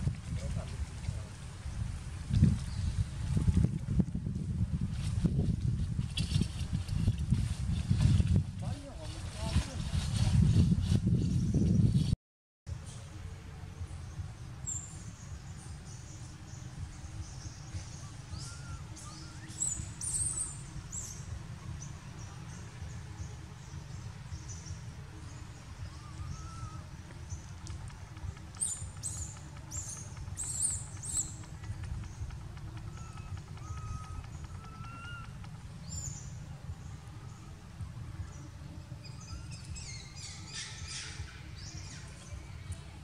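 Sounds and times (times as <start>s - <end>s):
low rumble: 0.0s - 43.0s
small birds chirping: 13.9s - 43.0s.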